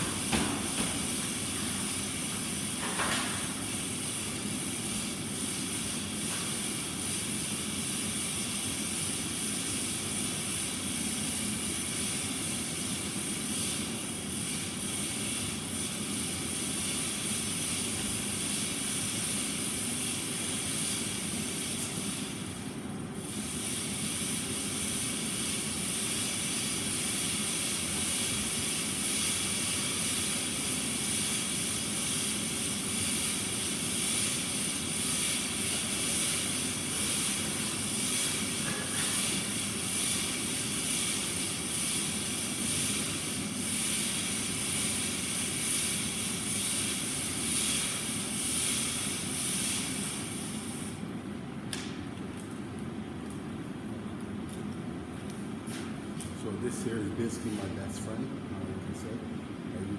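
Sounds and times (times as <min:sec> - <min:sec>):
mechanical hum with high hiss: 0:00.0 - 0:59.9.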